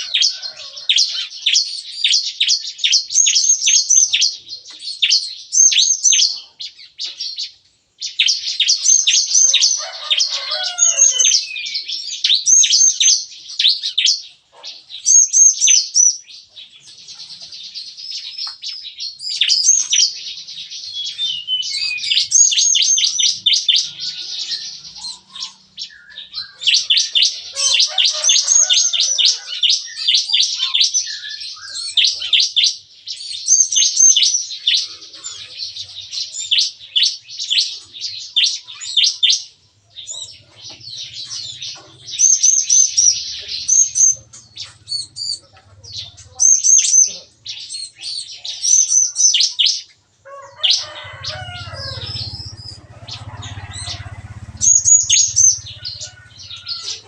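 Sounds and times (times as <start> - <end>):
birds chirping sharply: 0.0 - 57.0.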